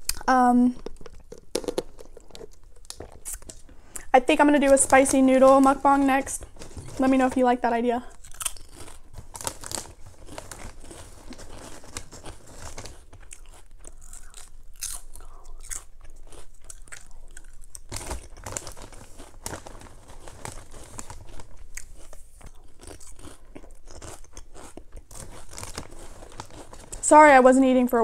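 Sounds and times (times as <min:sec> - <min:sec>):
person chewing crunchy chips: 0:00.0 - 0:27.1.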